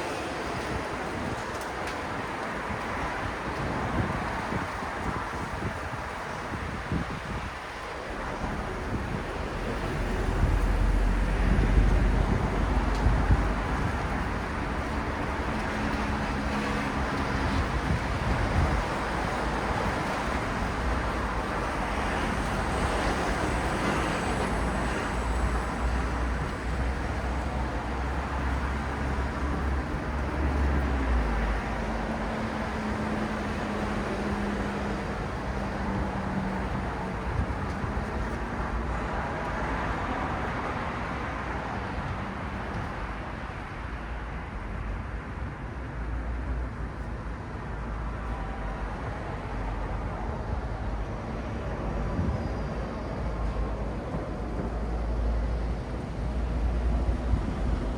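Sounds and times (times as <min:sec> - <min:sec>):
road traffic: 0:00.0 - 0:57.9
heavy engines humming: 0:07.0 - 0:45.1.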